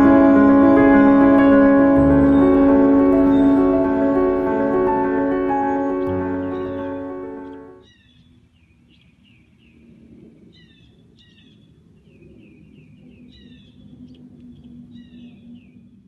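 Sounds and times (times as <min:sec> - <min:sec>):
faint low rumble: 0:00.0 - 0:07.8
music: 0:00.0 - 0:07.8
birds chirping: 0:00.0 - 0:09.8.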